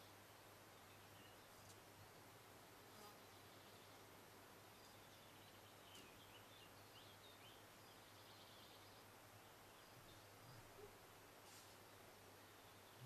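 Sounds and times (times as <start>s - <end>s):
faint low hum: 0.0s - 13.0s
faint bird chirps: 3.0s - 4.1s, 4.7s - 13.0s.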